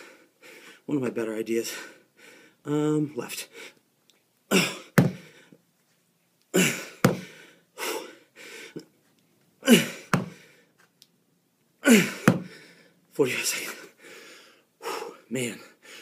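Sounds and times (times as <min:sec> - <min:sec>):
man exhaling with exertion: 0:11.8 - 0:12.8.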